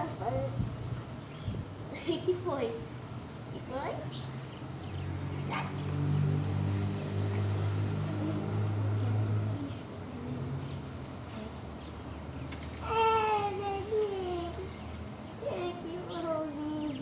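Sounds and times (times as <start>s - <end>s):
low engine hum: 4.4s - 17.0s.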